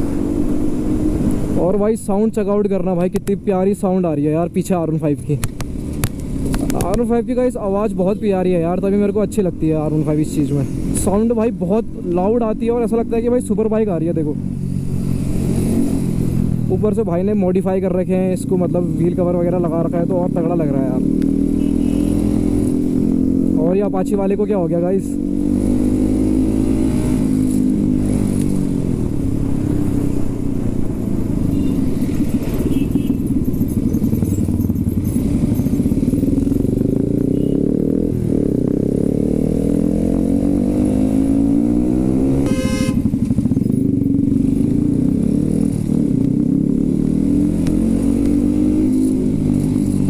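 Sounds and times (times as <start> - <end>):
motorcycle engine revving: 14.4 - 16.9, 19.6 - 23.9, 25.0 - 50.0.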